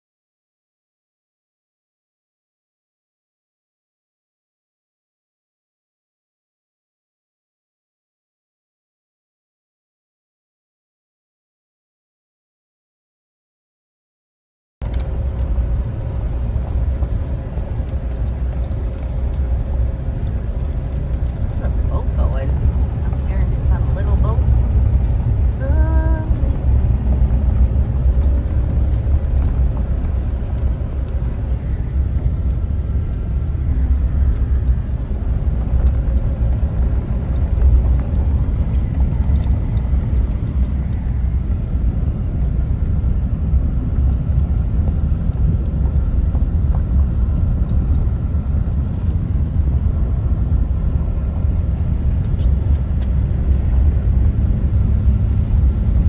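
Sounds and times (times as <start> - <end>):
loud steady low rumble: 14.8 - 56.0.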